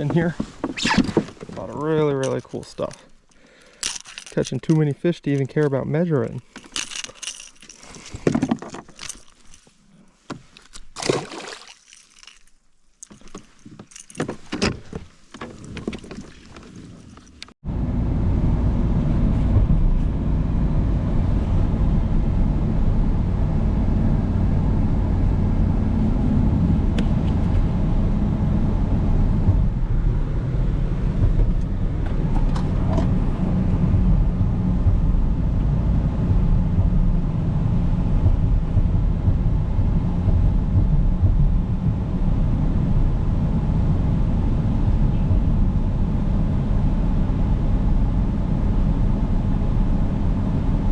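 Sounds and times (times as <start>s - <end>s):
handling clicks and rustles: 0.0s - 17.6s, 31.2s - 33.7s
loud low rumble: 17.6s - 50.9s.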